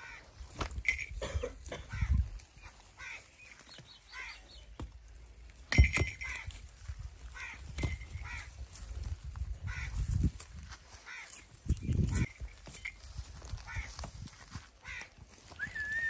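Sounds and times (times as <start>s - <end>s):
birds calling harshly: 0.0s - 16.0s.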